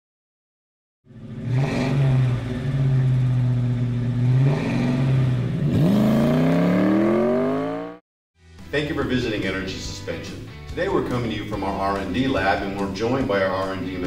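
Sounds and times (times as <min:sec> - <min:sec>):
car engine revving: 0:01.1 - 0:08.0.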